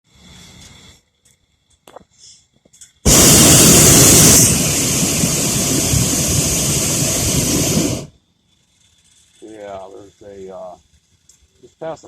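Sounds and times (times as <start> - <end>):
propane burner roaring: 3.0 - 8.2.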